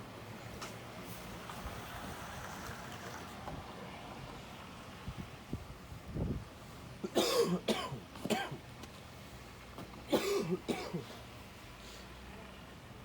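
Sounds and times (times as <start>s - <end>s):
person coughing: 7.0s - 8.6s, 10.1s - 11.1s.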